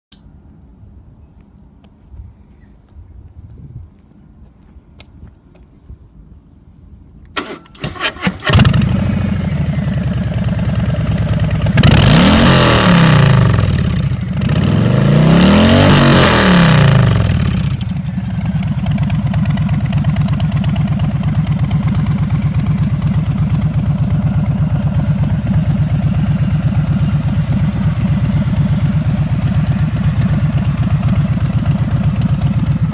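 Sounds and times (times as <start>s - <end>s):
motorcycle starter cranking: 7.4s - 9.0s
motorcycle engine idling and revving: 7.9s - 32.9s.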